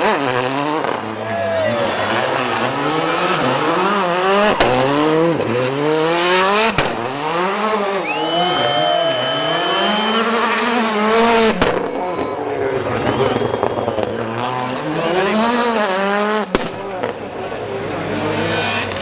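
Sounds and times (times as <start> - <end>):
rally car engine revving: 0.0 - 19.0
sharp bangs: 3.8 - 8.0, 9.4 - 12.5, 16.3 - 17.6
tyre squeal: 8.0 - 11.6.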